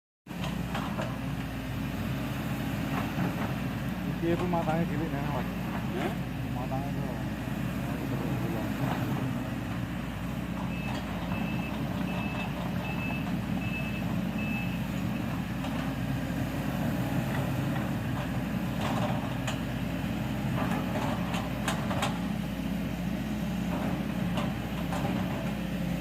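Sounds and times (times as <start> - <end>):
excavator diesel engine running: 0.3 - 26.0
travel alarm beeps: 10.7 - 14.8.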